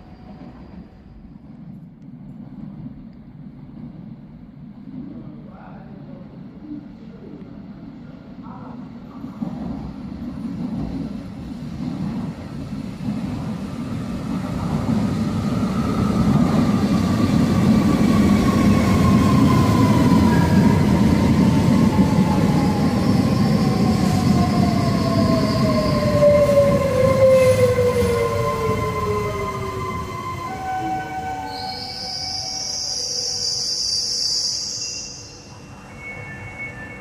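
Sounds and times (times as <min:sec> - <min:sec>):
train wheels rumbling on track: 0:08.6 - 0:31.8.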